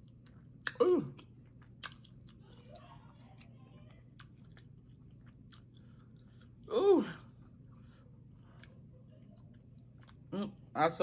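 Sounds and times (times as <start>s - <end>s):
chewing and mouth clicks: 0.0s - 10.7s
person humming: 6.7s - 7.2s.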